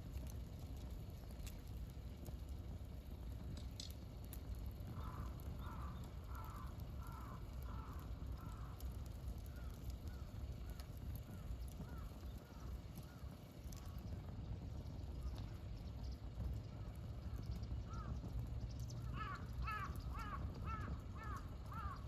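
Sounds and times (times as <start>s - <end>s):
campfire crackling: 0.0s - 22.0s
crow cawing: 5.0s - 8.8s, 11.3s - 13.2s, 17.9s - 18.2s, 19.1s - 22.0s.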